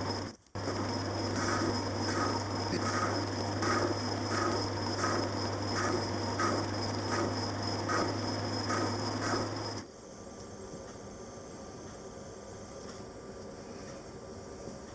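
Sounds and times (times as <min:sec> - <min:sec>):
machine tool hum and whine: 0:00.0 - 0:09.9
tool scraping metal: 0:00.8 - 0:09.8.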